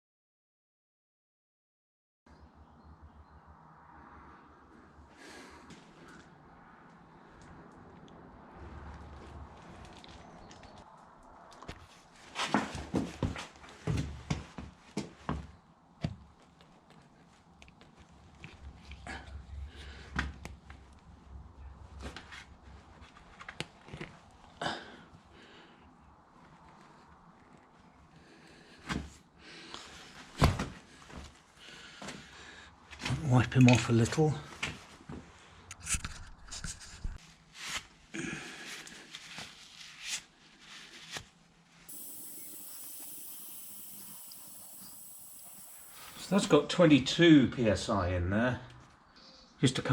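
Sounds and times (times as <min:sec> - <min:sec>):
air hissing into tyre: 0:41.9 - 0:46.5
thin high whine: 0:41.9 - 0:46.6.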